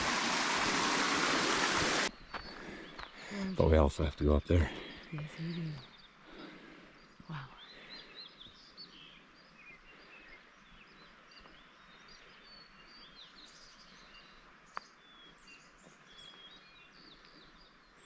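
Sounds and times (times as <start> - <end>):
open air hiss: 0.0 - 2.1
small birds chirping: 0.6 - 18.0.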